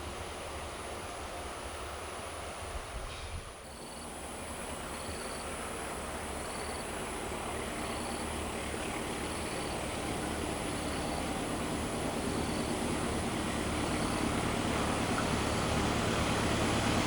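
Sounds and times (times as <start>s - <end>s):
diesel locomotive rumble: 0.0s - 17.0s
insect chirps: 3.6s - 14.3s.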